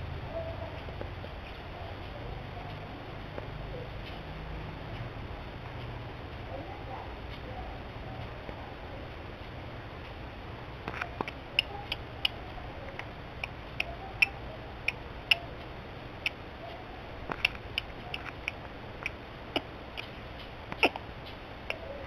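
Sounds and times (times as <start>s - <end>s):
steady low hum: 0.0s - 22.0s
small bird tick notes: 11.1s - 15.5s.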